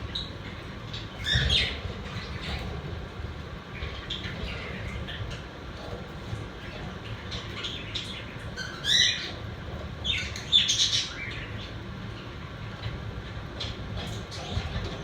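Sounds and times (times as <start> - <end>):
budgerigars chirping and chattering: 0.0 - 3.0, 3.7 - 12.9
low room hum: 0.0 - 15.0.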